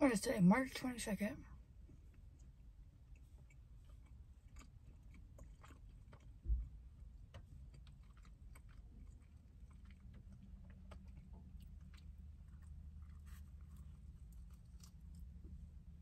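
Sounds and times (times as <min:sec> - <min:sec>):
faint chewing: 0:01.5 - 0:16.0
dull low thump: 0:06.3 - 0:07.0.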